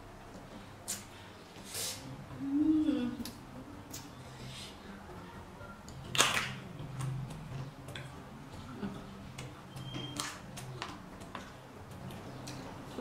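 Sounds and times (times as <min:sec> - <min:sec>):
chewing with wet clicks: 0:05.8 - 0:08.2, 0:09.3 - 0:12.7.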